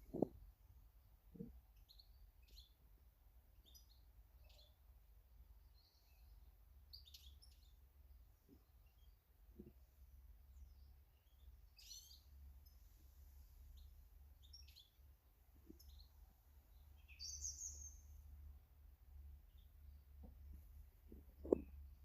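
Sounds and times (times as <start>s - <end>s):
small birds chirping: 0.0s - 0.4s, 1.1s - 22.0s
knocks: 21.4s - 21.7s.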